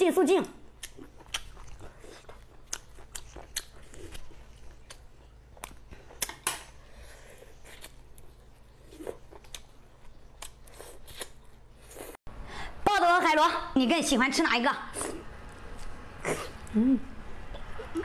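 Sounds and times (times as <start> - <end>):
person chewing food: 0.7 - 12.2.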